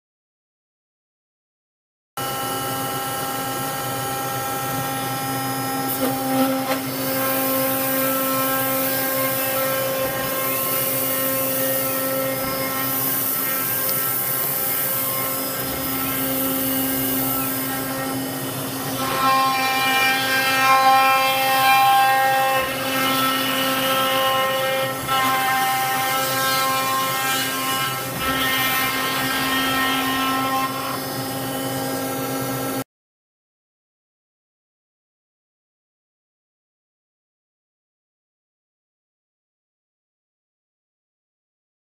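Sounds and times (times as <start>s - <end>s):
spindle whine cutting ice: 2.2s - 20.5s.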